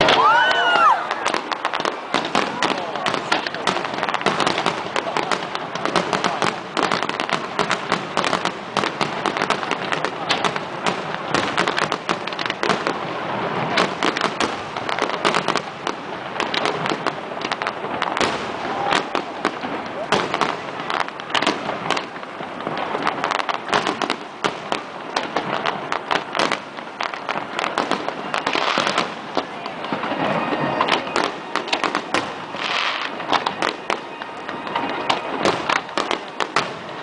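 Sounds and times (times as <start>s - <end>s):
fireworks bangs and crackles: 0.0s - 37.0s.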